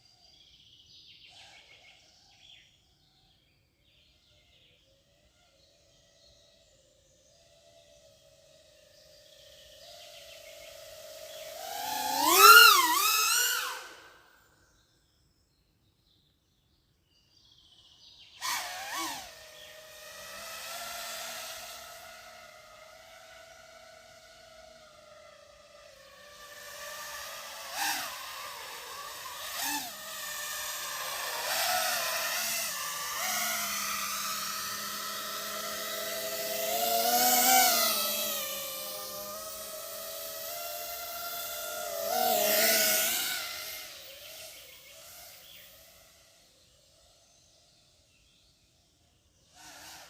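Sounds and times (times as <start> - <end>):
drone motors whining: 5.0 - 14.4, 18.4 - 48.0.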